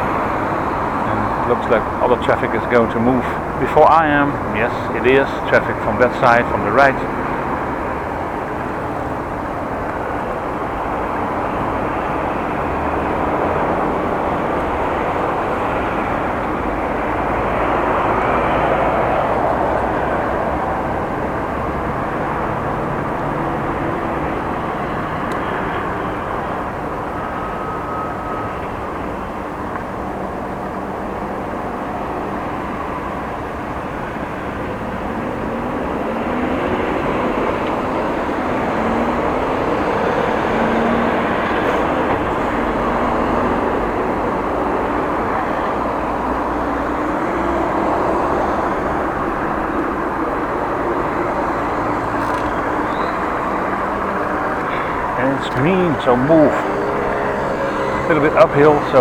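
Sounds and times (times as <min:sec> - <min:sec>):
car engines passing: 0:00.0 - 0:59.0.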